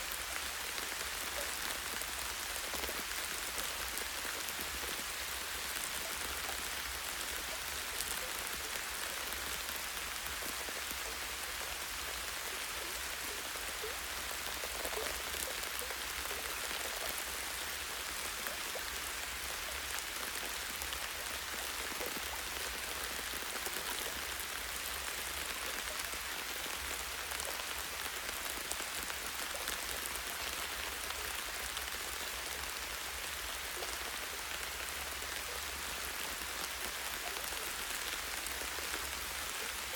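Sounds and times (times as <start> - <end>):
light rain on trees: 0.0 - 39.9.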